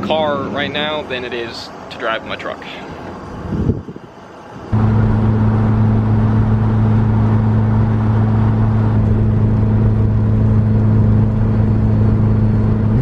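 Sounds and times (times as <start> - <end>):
car engine droning: 4.1 - 13.0.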